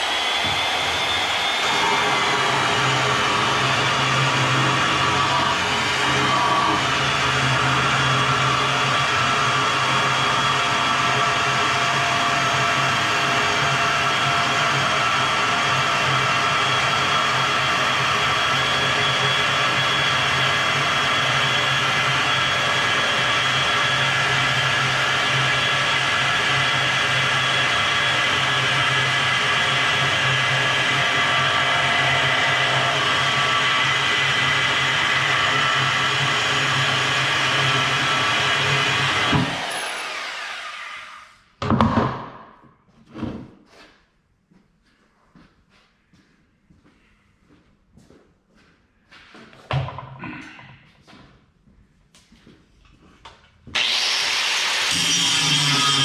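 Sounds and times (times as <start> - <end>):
bandsaw cutting metal: 0.0 - 41.4, 53.7 - 56.0.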